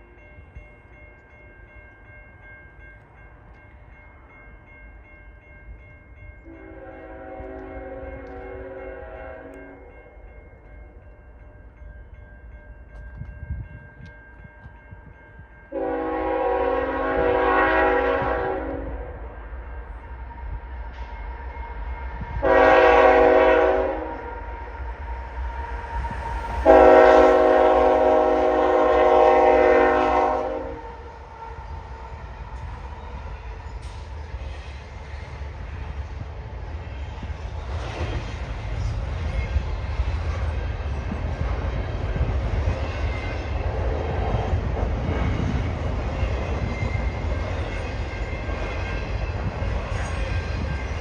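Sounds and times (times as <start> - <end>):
rumble of passing train: 0.0 - 51.0
locomotive air horn blasts: 6.4 - 9.8, 15.7 - 19.1, 22.4 - 24.4, 26.6 - 31.0.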